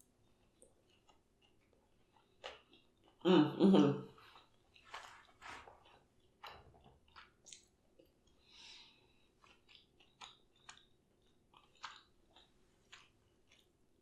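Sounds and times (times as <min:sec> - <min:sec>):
mouth chewing wetly: 0:09.1 - 0:13.7.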